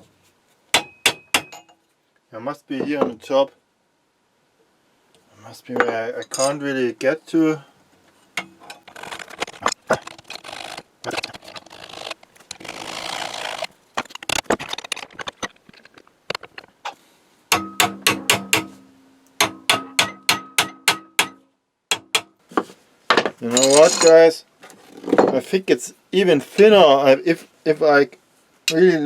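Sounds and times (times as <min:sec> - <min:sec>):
sharp taps on ringing metal: 0:00.8 - 0:01.8, 0:17.5 - 0:22.4
metal tools clicking and scraping: 0:05.8 - 0:06.6, 0:08.4 - 0:16.6, 0:23.5 - 0:24.3.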